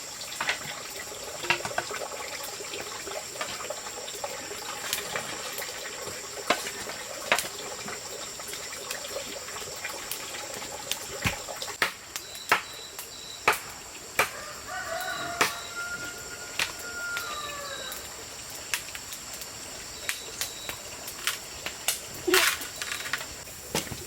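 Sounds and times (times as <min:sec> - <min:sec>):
high insect drone: 0:00.0 - 0:24.0
rooster crowing: 0:14.2 - 0:18.1.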